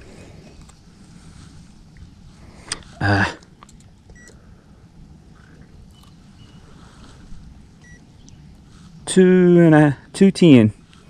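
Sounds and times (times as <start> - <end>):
loud pitched grunt: 3.0 - 3.4
short electronic beeps: 7.8 - 8.0.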